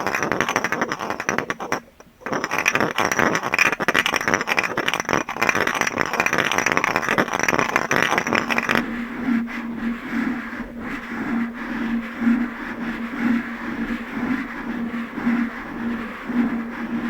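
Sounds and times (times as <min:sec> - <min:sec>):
low pulsing hum: 0:04.7 - 0:17.0.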